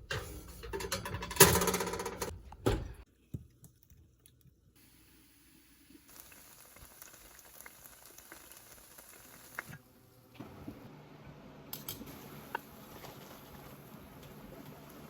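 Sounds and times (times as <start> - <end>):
food sizzling in a pan: 4.8 - 9.8
small popping of frying food: 5.9 - 9.8.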